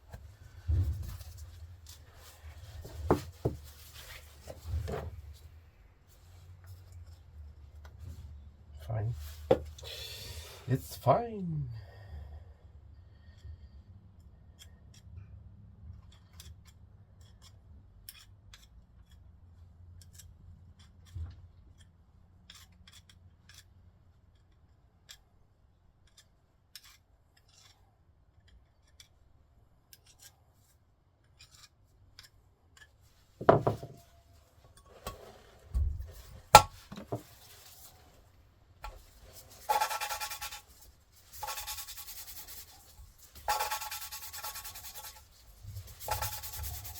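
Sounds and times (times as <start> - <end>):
rough rubbing strokes: 37.1 - 46.9.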